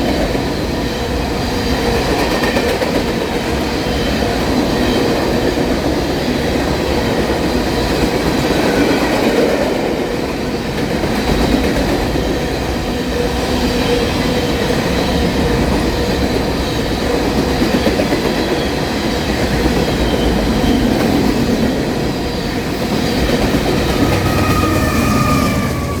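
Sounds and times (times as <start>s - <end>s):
freight train wheels rumbling: 0.0s - 26.0s
high wheel squeal: 23.0s - 26.0s.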